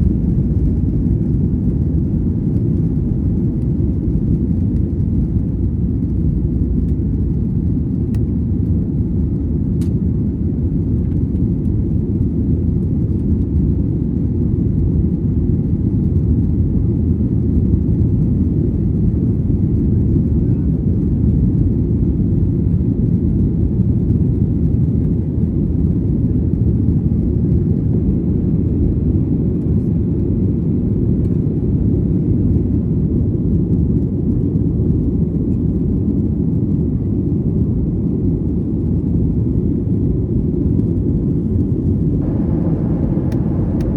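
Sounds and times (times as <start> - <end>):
vehicle interior rumble: 42.2 - 43.9.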